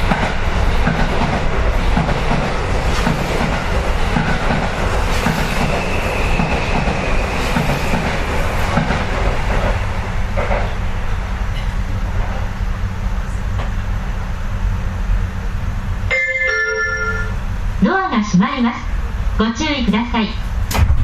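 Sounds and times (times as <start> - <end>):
train rumbling and clattering: 0.0 - 21.0
steady high whine: 14.9 - 19.9.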